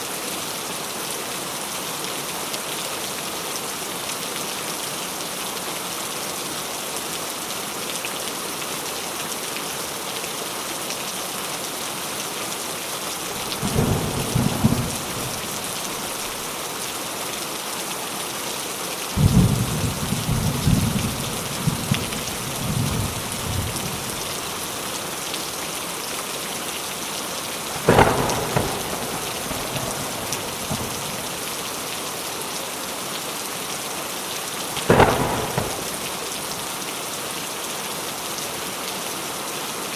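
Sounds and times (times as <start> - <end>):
steady rain falling: 0.0 - 39.9
thunder rumbling: 13.3 - 16.5, 19.2 - 24.9, 27.7 - 31.6, 34.8 - 36.6.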